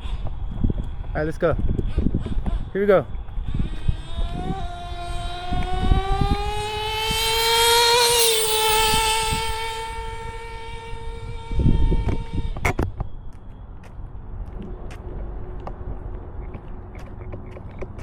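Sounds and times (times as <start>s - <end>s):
nitro engine screaming: 3.4s - 12.6s.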